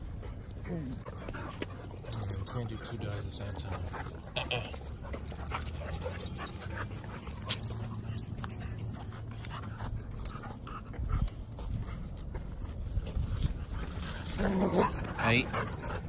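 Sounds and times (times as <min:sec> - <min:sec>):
dogs barking playfully: 0:00.6 - 0:09.3, 0:13.9 - 0:16.0.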